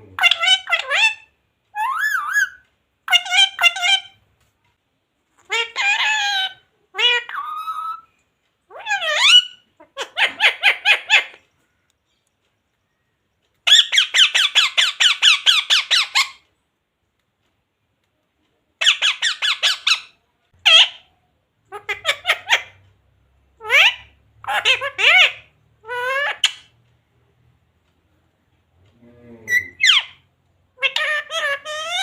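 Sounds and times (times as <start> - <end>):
parrot calling shrilly: 0.2 - 4.2, 5.4 - 8.1, 8.7 - 11.4, 13.6 - 16.4, 18.8 - 21.1, 21.7 - 22.8, 23.6 - 26.7, 29.4 - 32.0.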